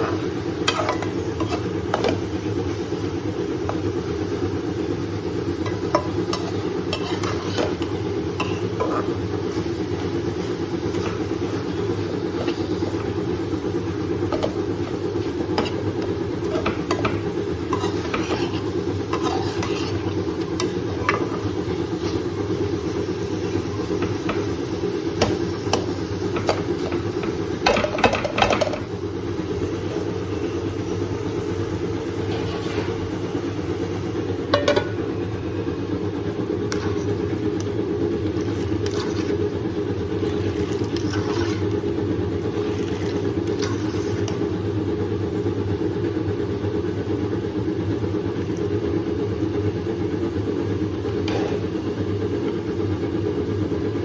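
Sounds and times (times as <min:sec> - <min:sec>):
spoon stirring in a pan: 0:00.0 - 0:33.6, 0:36.3 - 0:44.8
steady low hum: 0:00.0 - 0:54.0.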